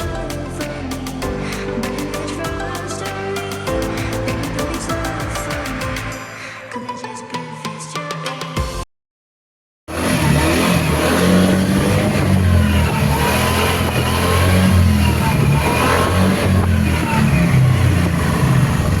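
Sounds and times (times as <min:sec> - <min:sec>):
scooter engine revving: 0:09.9 - 0:19.0.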